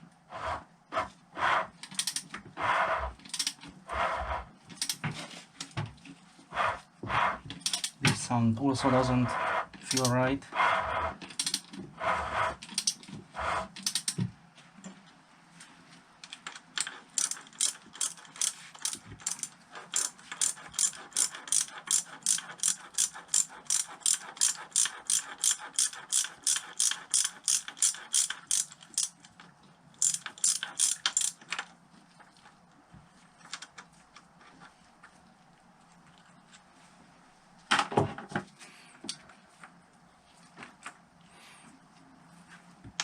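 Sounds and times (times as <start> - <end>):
ratchet wrench clicking: 1.8 - 2.2, 3.3 - 3.6, 7.6 - 8.0, 9.8 - 10.2, 11.3 - 11.7, 12.7 - 13.0, 13.8 - 14.2, 16.8 - 29.2, 30.0 - 31.4.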